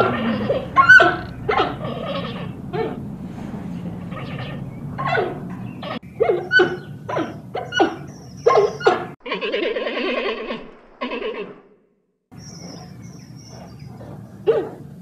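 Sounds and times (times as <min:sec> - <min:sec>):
panda calling: 0:00.0 - 0:03.1.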